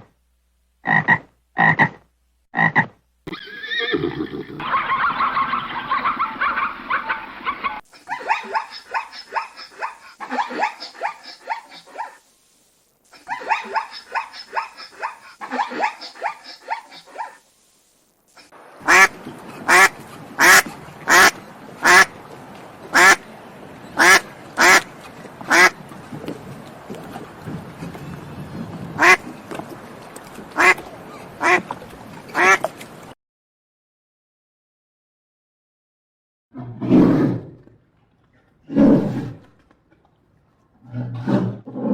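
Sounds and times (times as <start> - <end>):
animal quack-like calls: 0.8 - 2.0, 2.6 - 3.0, 18.8 - 22.2, 22.9 - 23.2, 24.0 - 25.8, 29.0 - 29.3, 30.6 - 32.7.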